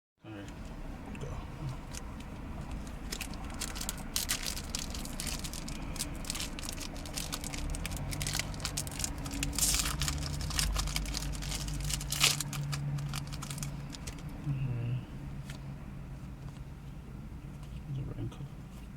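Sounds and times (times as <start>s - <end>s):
foil wrapper crinkling and tearing: 2.8s - 14.4s.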